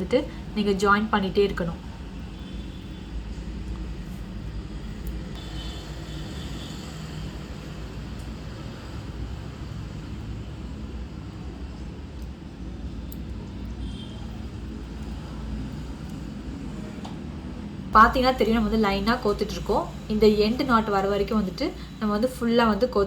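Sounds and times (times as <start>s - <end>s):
faint small clicks: 13.0s - 13.4s.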